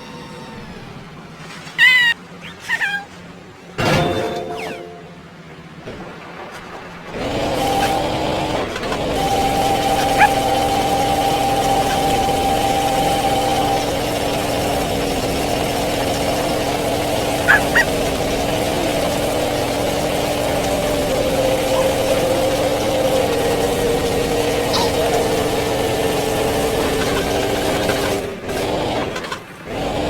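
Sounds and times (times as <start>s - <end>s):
motor running steadily: 7.0s - 30.0s.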